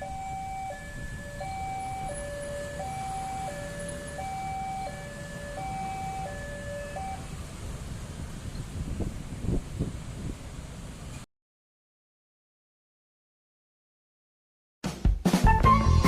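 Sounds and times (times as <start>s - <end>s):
level crossing two-tone alarm: 0.0s - 7.3s.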